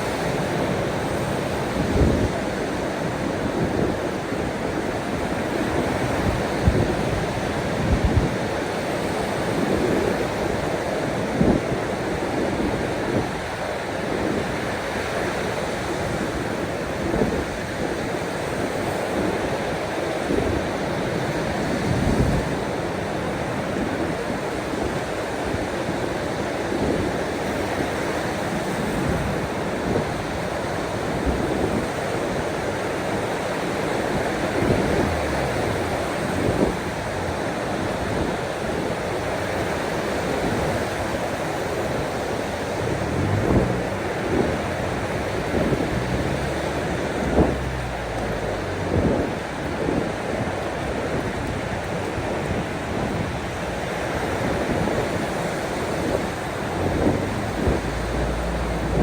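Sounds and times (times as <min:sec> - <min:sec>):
ocean surf washing: 0:32.4 - 0:59.0.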